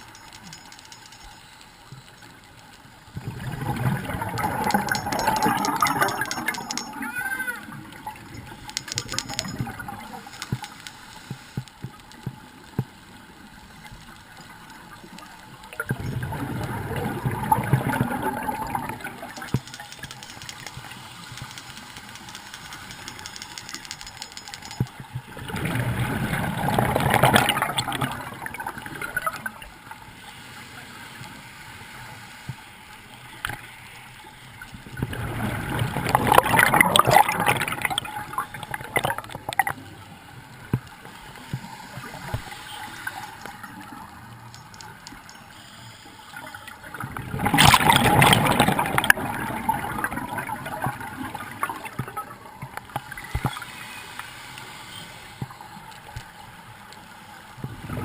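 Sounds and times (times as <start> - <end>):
fine underwater crackle: 0.0 - 58.0
scuba bubbles gurgling: 1.9 - 23.7, 24.9 - 30.0, 34.6 - 45.4, 46.3 - 54.0, 57.5 - 58.0.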